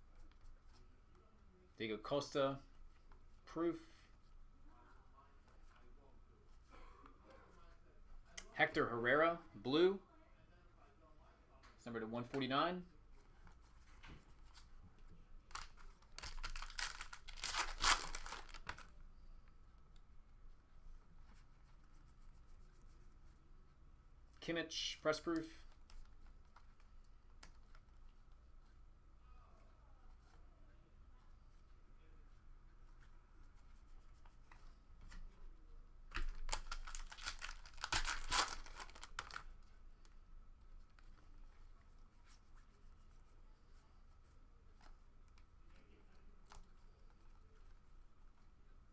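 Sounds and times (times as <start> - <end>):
wrapper tearing and crinkling: 15.5 - 18.8, 36.3 - 39.4.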